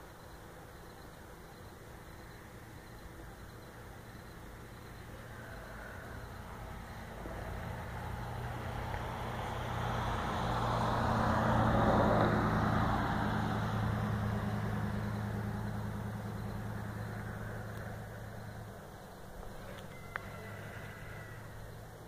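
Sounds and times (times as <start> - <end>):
low droning hum: 13.8 - 22.0.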